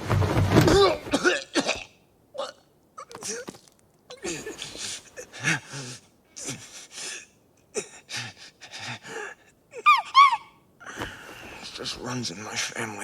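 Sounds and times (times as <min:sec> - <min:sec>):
high-pitched squeaky cries: 0:09.8 - 0:10.6.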